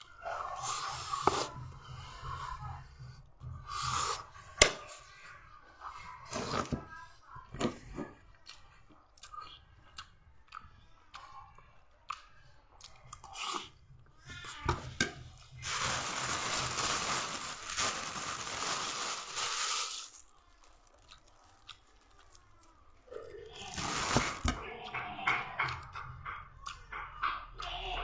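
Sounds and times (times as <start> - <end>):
crunchy chewing: 15.2 - 25.0.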